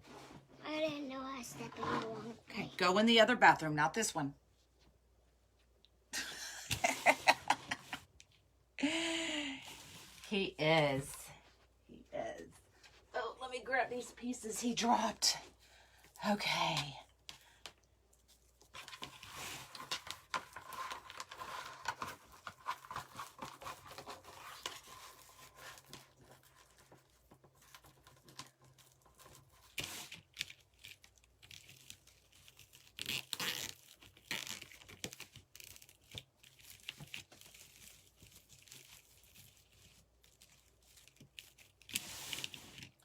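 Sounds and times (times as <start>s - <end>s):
mesh crinkling and rustling: 17.2s - 43.0s.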